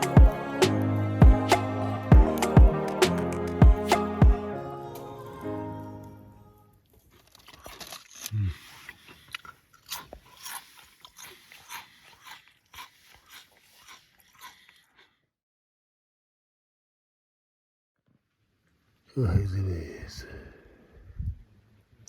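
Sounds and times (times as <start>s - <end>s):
crunching and chewing: 6.8s - 15.2s
short low grunt: 8.3s - 8.6s.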